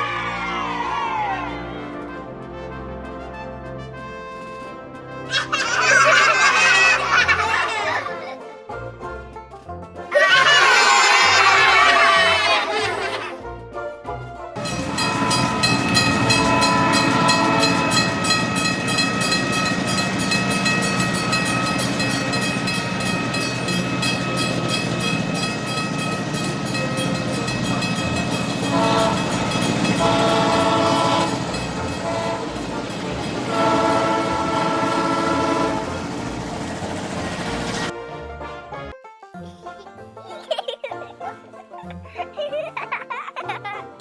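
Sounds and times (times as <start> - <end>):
train horn: 14.6 - 37.9
train wheels clacking: 14.6 - 37.9.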